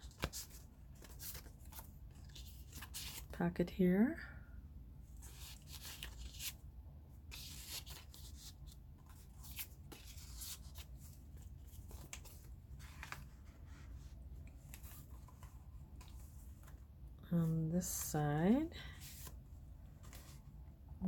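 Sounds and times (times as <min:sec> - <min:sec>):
paper rustling and crinkling: 0:00.0 - 0:03.3, 0:05.2 - 0:06.6, 0:07.3 - 0:16.8, 0:18.9 - 0:20.6.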